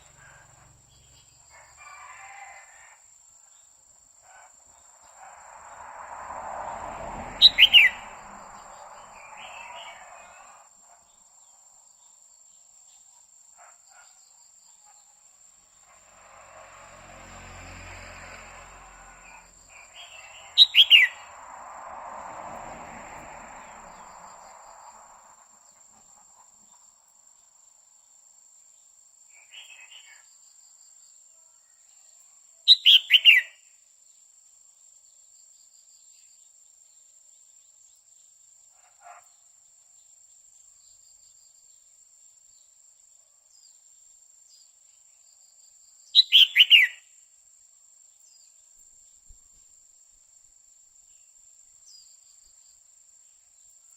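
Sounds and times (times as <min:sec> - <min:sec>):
bird giving sharp falling calls: 0:07.4 - 0:08.0.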